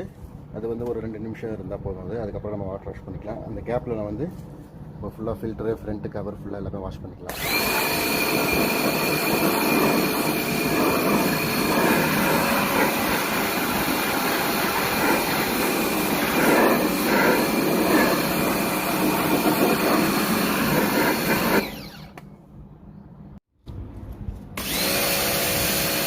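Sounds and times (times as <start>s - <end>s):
pressure washer motor whine: 7.3s - 22.2s, 24.6s - 26.0s
water spray hissing: 8.3s - 21.6s.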